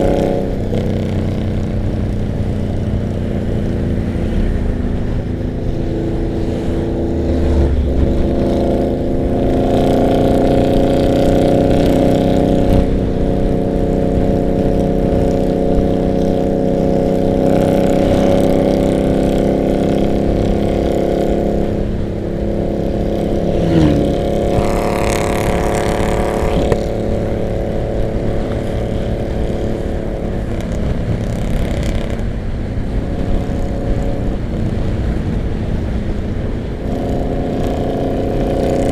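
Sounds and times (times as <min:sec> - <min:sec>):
motorcycle engines cruising: 0:00.0 - 0:38.9
wind noise on microphone: 0:00.0 - 0:38.9.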